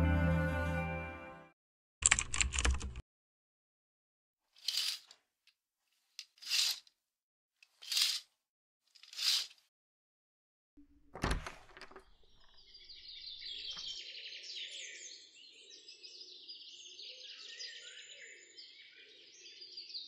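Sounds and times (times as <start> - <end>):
birds chirping and twittering: 12.0 - 20.0.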